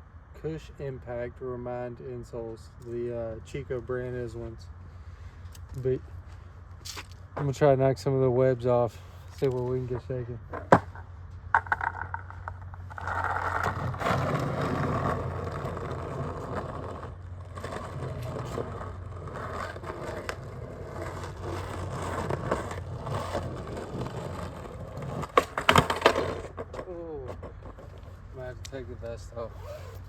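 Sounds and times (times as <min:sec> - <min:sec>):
skateboard wheels rolling on pavement: 0:01.0 - 0:30.0
skateboard clacks: 0:09.5 - 0:28.8.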